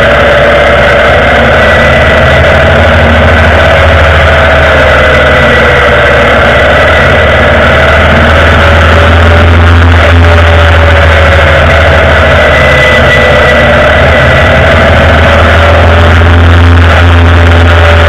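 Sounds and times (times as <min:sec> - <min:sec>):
motorcycle engine cruising: 0:00.0 - 0:18.0
wind and road noise: 0:00.0 - 0:18.0.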